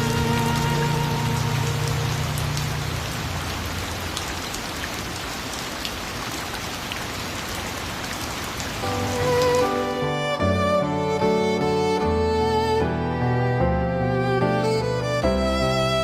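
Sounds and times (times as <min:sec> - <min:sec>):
instrumental music with sustained notes: 0:00.0 - 0:03.7, 0:08.8 - 0:16.0
steady rain falling: 0:00.0 - 0:12.8.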